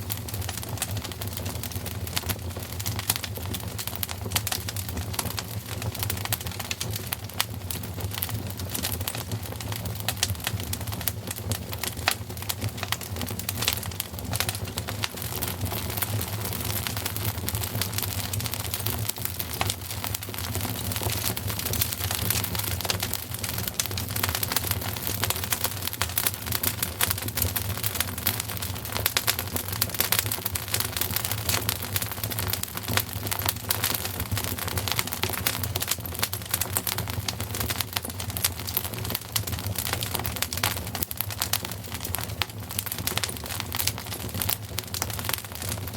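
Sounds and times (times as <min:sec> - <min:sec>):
wood fire crackling: 0:00.0 - 0:45.9.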